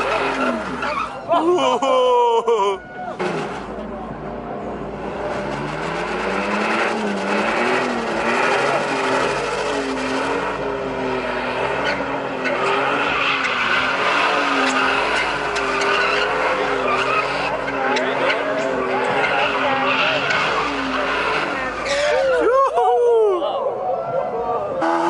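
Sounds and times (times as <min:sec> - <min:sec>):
car engine revving: 0:00.0 - 0:01.2, 0:03.2 - 0:22.4
tyres squealing on pavement: 0:00.0 - 0:01.8, 0:05.4 - 0:22.6.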